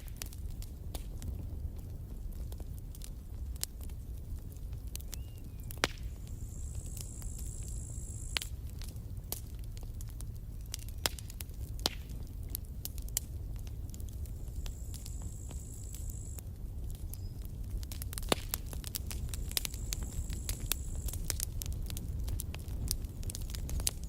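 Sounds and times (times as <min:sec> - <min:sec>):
campfire crackling and popping: 0:00.0 - 0:24.0
low rumble of flames: 0:00.0 - 0:24.0
high steady hiss: 0:06.0 - 0:08.7, 0:14.1 - 0:16.4, 0:18.5 - 0:23.2.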